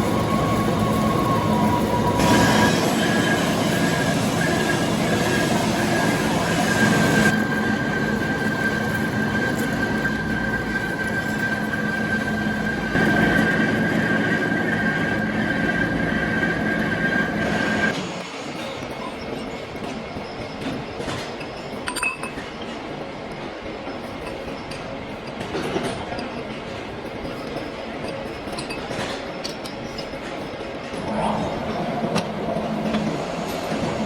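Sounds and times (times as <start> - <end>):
high-pitched squeal: 0.0 - 17.9
metal lathe running: 0.0 - 18.0.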